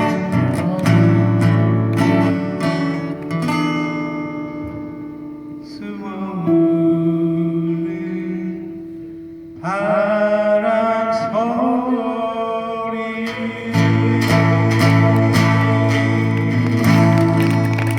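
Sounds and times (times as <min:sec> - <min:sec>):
acoustic guitar strumming: 0:00.0 - 0:17.9
person singing: 0:09.6 - 0:17.9.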